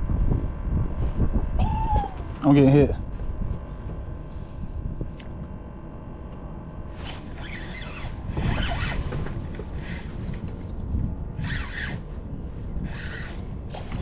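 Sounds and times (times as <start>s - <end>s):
wind rumble on microphone: 0.0s - 14.0s
fishing reel rasping: 11.4s - 12.0s, 12.8s - 13.4s.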